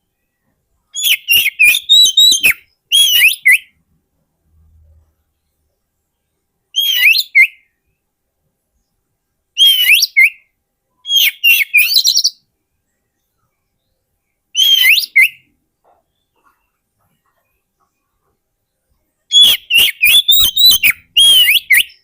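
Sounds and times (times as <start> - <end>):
bird singing whistled notes: 0.2 - 3.8, 6.7 - 8.0, 9.6 - 12.5, 13.2 - 15.6, 19.3 - 22.0.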